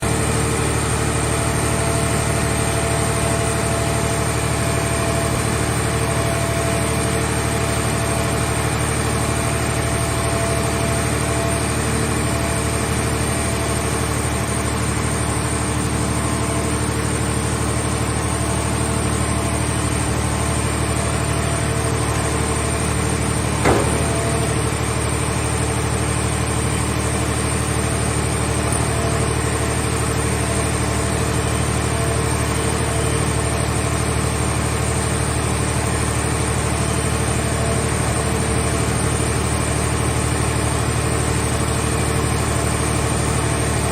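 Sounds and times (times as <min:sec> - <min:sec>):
engine idling: 0:00.0 - 0:43.9
short knock: 0:23.6 - 0:24.8.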